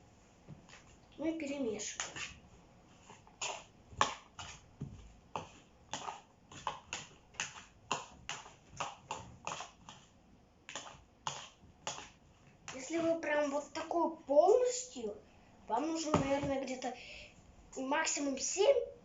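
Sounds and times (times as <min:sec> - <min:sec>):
spoon scraping a bowl: 0:03.0 - 0:04.6, 0:05.4 - 0:08.4, 0:09.4 - 0:10.1.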